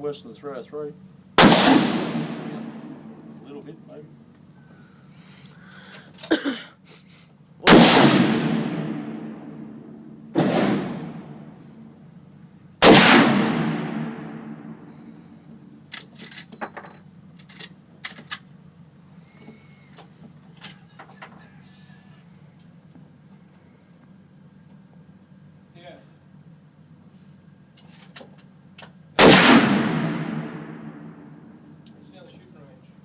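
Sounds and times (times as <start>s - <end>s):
rifle shots echoing: 1.4s - 3.5s, 7.6s - 11.9s, 12.8s - 15.0s, 29.2s - 31.5s.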